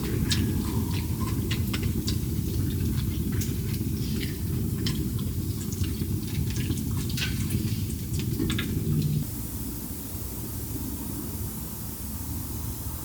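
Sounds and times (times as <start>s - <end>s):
low rumble: 7.5s - 9.5s.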